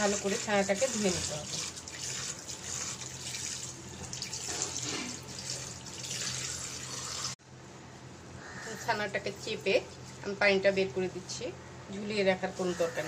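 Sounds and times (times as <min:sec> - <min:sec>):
tap water running into strainer: 0:00.0 - 0:07.4.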